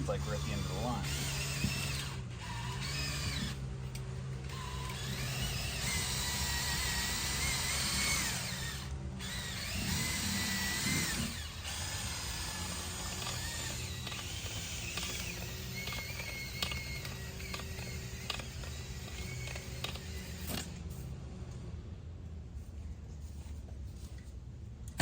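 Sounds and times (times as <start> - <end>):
drill spinning brush in duct: 0.0 - 21.1.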